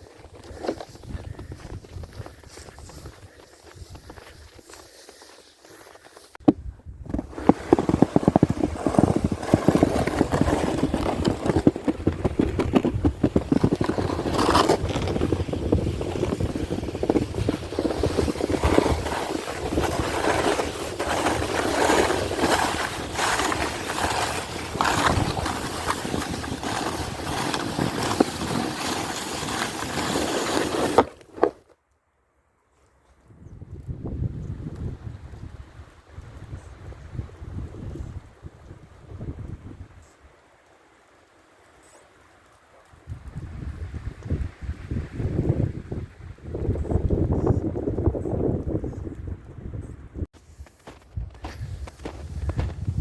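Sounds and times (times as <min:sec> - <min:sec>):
sled scraping over snow: 0:00.0 - 0:06.4, 0:07.0 - 0:31.7.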